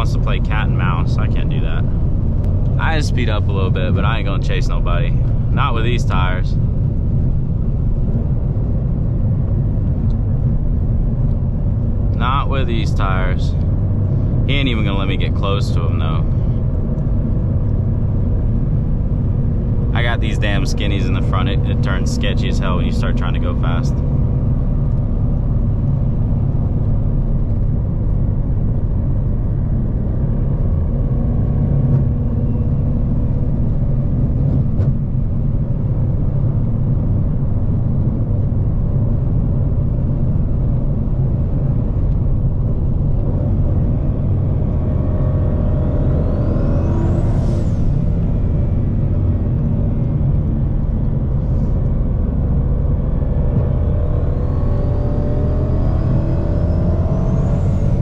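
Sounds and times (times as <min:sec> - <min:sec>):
car engine and road drone: 0:00.0 - 0:58.0.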